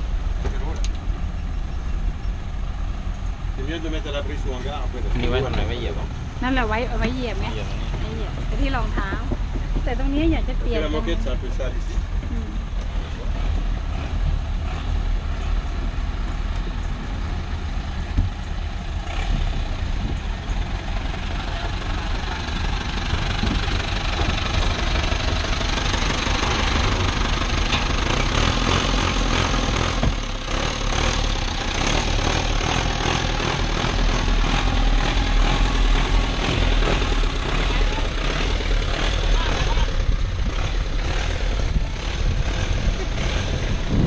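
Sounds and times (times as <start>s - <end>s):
engine rumbling: 0.0s - 44.0s.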